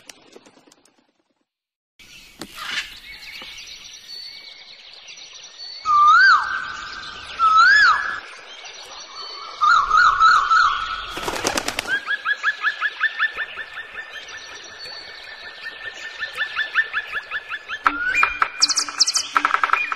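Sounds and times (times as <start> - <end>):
rapid fluttering clicks: 0.0 - 1.4
birds chirping and whistling: 2.0 - 19.9.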